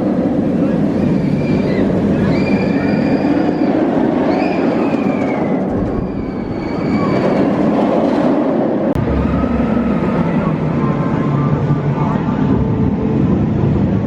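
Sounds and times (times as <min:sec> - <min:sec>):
roller coaster rumbling on track: 0:00.0 - 0:14.0
high drawn-out squeals: 0:00.9 - 0:07.8.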